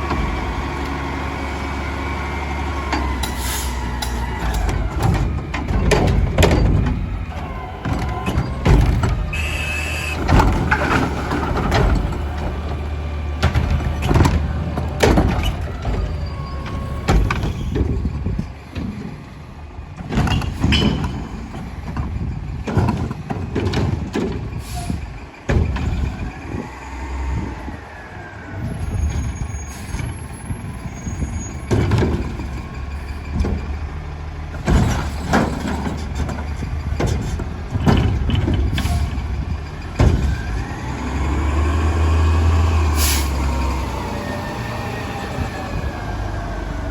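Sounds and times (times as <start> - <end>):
diesel engine running: 0.0 - 46.9
bangs and clatter: 2.8 - 9.4, 10.2 - 19.2, 20.0 - 26.3, 31.3 - 33.9, 34.5 - 41.4
air brakes hissing: 3.2 - 4.3, 24.6 - 25.2, 42.9 - 43.6.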